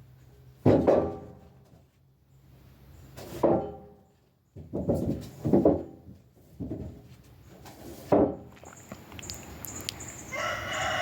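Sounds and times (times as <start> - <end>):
chickens calling: 8.6 - 11.0.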